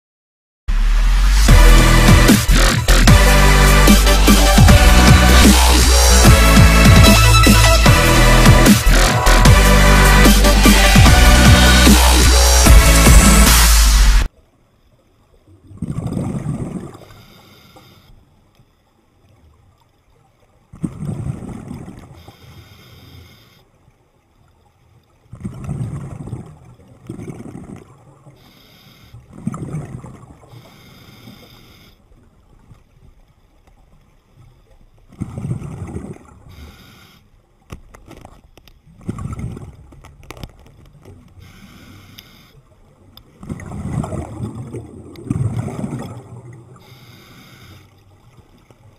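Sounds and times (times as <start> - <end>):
bubbling exhalation underwater: 15.6 - 17.1, 20.7 - 22.0, 25.3 - 28.0, 29.3 - 30.5, 35.2 - 36.5, 39.0 - 39.9, 43.4 - 46.8
regulator inhalation hiss: 30.6 - 32.0, 36.5 - 37.3, 41.4 - 42.6, 46.8 - 47.9.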